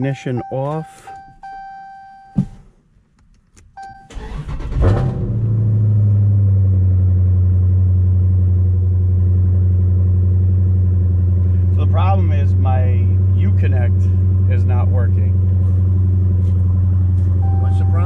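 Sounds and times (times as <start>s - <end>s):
dashboard chimes: 0.0s - 2.5s, 17.3s - 18.0s
car engine starting and idling: 3.2s - 18.0s.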